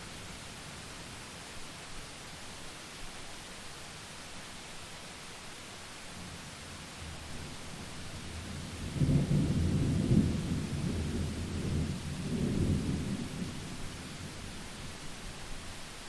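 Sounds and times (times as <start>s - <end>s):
steady rain: 0.0s - 16.0s
rolling thunder: 8.4s - 14.0s.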